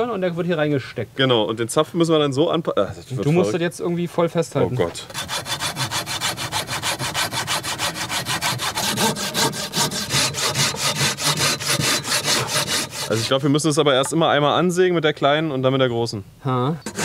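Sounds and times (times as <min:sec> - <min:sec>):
hand saw cutting wood: 0:05.1 - 0:13.7.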